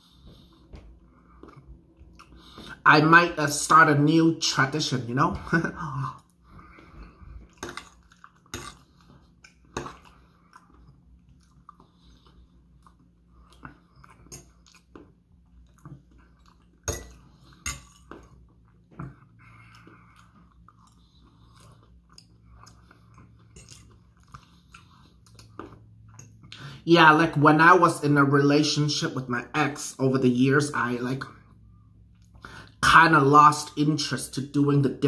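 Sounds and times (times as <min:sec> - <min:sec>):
person chewing food: 0:00.0 - 0:02.8, 0:05.8 - 0:26.7.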